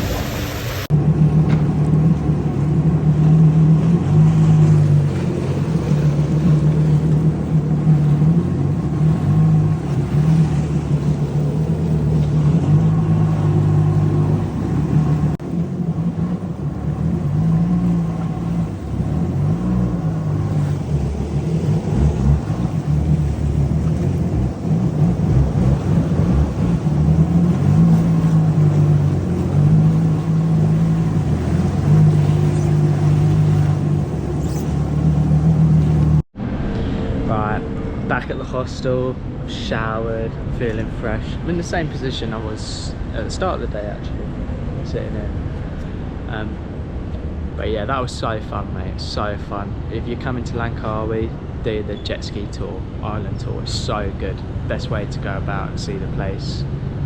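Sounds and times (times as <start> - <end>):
jet ski engine: 0.0 - 36.3, 37.1 - 57.0.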